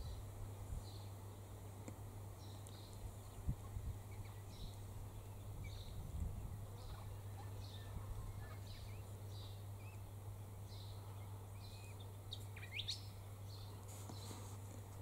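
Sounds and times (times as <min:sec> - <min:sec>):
steady low hum: 0:00.0 - 0:15.0
faint bird chirps: 0:04.0 - 0:14.4.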